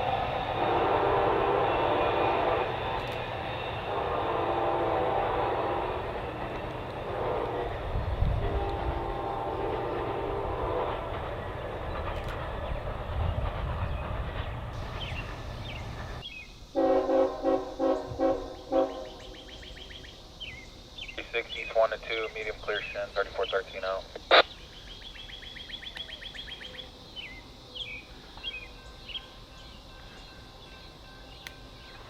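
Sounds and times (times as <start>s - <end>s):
train engines and wheels rumbling: 0.0s - 32.0s
locomotive air horn blasts: 0.5s - 2.9s, 3.7s - 6.4s, 7.0s - 11.1s, 16.8s - 19.2s.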